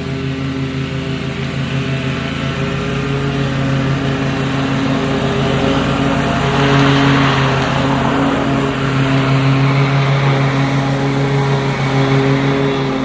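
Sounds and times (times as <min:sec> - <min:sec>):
mower engine running: 0:00.0 - 0:13.0.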